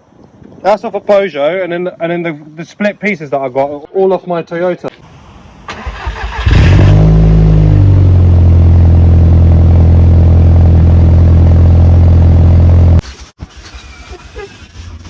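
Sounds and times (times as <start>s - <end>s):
car engine starting and idling: 5.7s - 15.0s.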